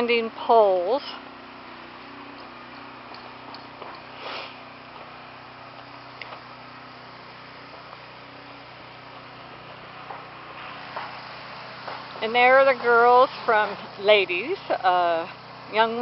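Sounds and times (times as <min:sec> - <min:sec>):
low mechanical hum: 0:00.0 - 0:16.0
short hiss: 0:04.1 - 0:04.7.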